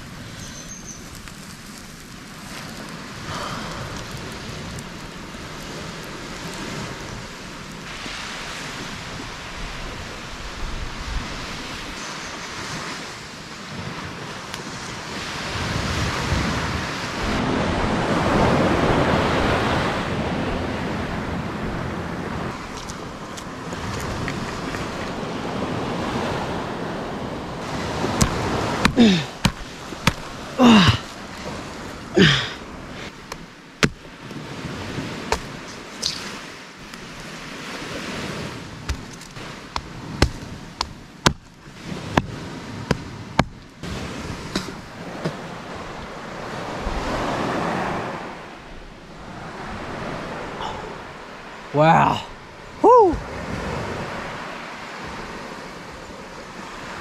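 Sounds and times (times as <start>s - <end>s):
surf washing ashore: 0.0s - 57.0s
wind on microphone: 2.3s - 33.1s, 33.8s - 51.3s
machete chopping palm trunk: 28.0s - 31.0s, 33.3s - 34.1s, 35.2s - 36.3s, 38.8s - 43.6s.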